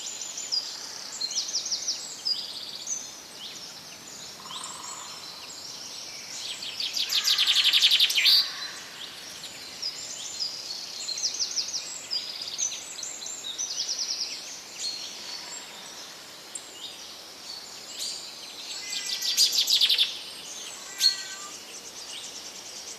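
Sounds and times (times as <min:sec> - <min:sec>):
steady background hiss: 0:00.0 - 0:22.9
birds singing and chirping: 0:17.5 - 0:22.9
loud fast bird trills: 0:20.9 - 0:21.5.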